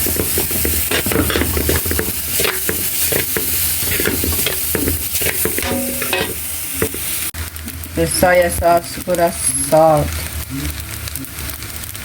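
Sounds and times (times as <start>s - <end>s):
spatula scraping a wok: 0.0s - 7.3s
rice sizzling in a wok: 0.0s - 12.0s.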